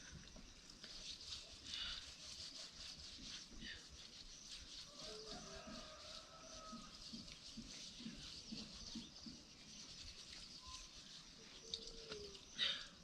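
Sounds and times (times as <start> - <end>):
light irregular pattering: 0.1 - 12.6
faint animal calls: 10.6 - 13.0.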